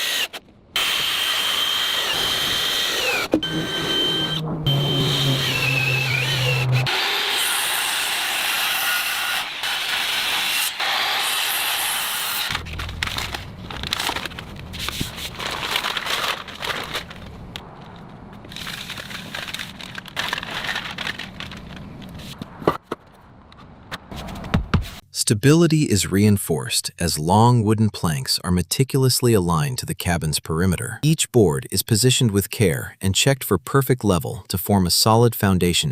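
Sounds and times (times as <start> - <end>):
power drill motor running: 0.0 - 12.6
scraping sawing on wood: 3.0 - 12.5.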